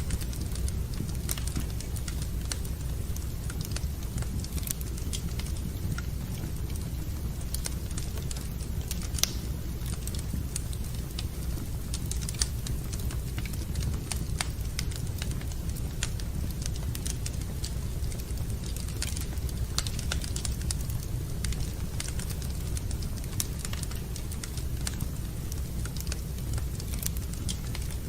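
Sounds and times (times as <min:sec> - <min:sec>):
wood fire crackling: 0:00.0 - 0:28.0
sharp pops of fire: 0:07.0 - 0:10.9.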